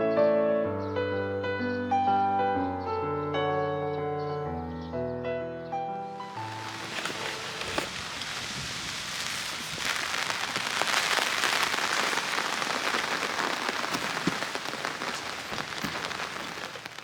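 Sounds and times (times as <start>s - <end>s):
rain falling steadily: 6.2s - 17.0s
raindrops ticking on surfaces: 6.2s - 17.0s.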